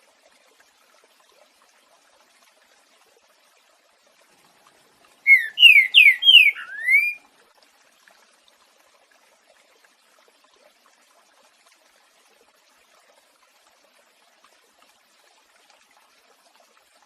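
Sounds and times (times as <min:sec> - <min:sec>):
bird whistling song: 0:05.2 - 0:07.2.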